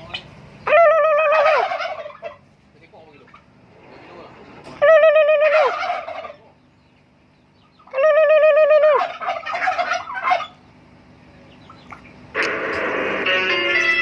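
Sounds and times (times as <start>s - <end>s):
turkeys gobbling: 0.0s - 4.0s, 4.6s - 14.0s
person imitating turkey call: 0.6s - 1.8s, 7.9s - 9.2s.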